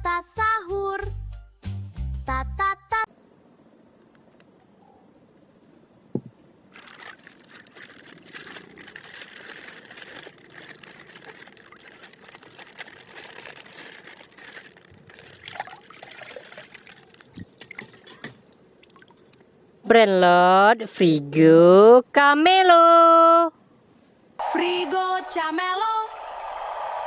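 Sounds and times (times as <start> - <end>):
plastic packaging crinkling: 6.7 - 18.0.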